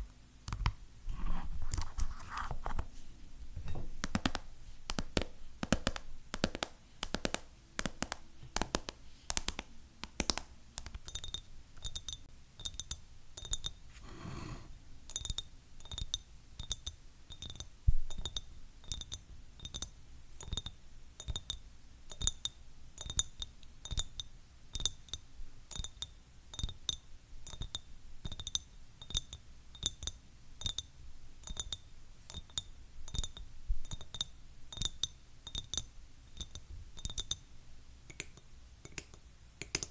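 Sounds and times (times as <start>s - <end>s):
rub across surface: 13.9s - 14.8s.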